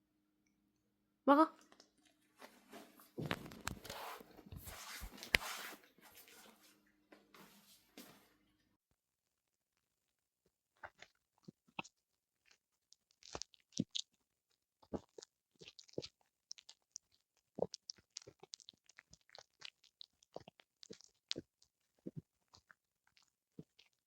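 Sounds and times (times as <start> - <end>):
dog chewing with crunches: 14.9 - 24.0.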